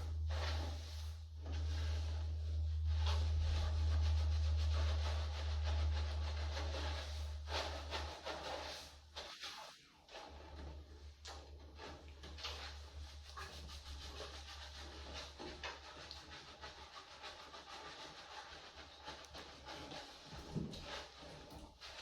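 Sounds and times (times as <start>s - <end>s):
low hum: 0.0s - 7.5s
hands scrubbing wet hair: 0.0s - 22.0s.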